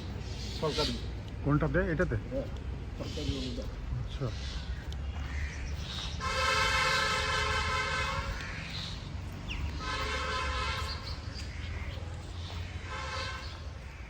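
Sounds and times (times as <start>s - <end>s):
horn blasts: 6.2s - 8.4s, 9.8s - 11.1s, 12.8s - 13.7s.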